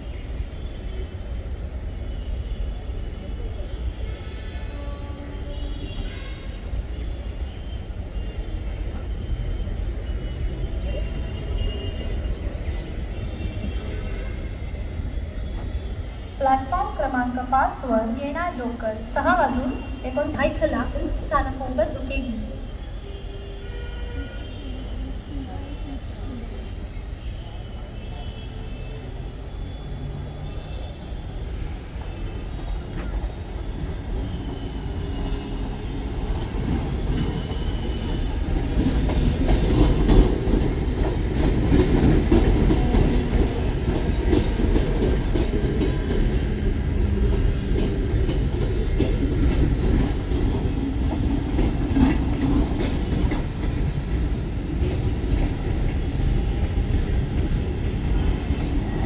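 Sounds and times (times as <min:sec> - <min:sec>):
train rumbling on tracks: 0:00.0 - 0:59.0.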